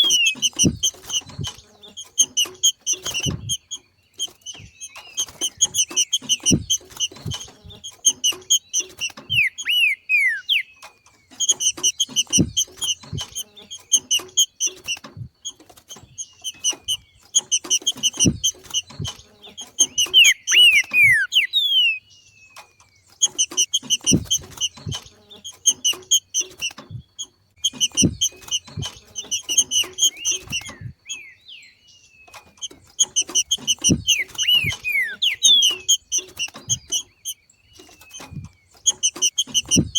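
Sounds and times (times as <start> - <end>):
soft low thumps: 0.0 - 1.7, 5.5 - 8.2, 11.8 - 13.4, 26.8 - 31.1, 32.7 - 37.0, 38.3 - 39.9
bird chirping and whistling: 0.0 - 14.8, 16.1 - 22.2, 25.7 - 39.9.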